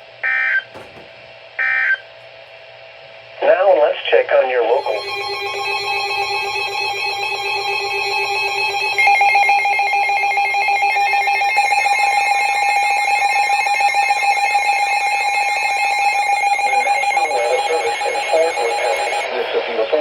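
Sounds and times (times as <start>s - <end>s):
electronic emergency alert tones: 4.8s - 19.3s
warbling tone: 4.8s - 19.3s.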